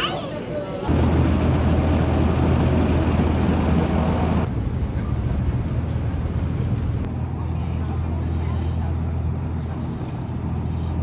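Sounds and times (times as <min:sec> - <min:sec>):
rushing noise: 0:00.9 - 0:07.1
vehicle rumbling in motion: 0:00.9 - 0:11.0.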